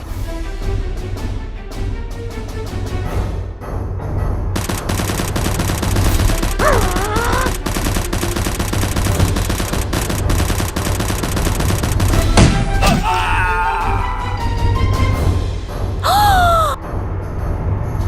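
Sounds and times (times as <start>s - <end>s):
rapid machine gun fire: 4.6s - 12.6s.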